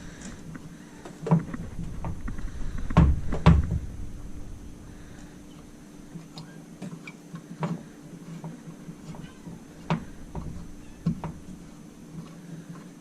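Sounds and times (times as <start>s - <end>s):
steady low hum: 0.0s - 13.0s
sharp knocks and clunks: 1.2s - 4.0s, 8.5s - 11.7s.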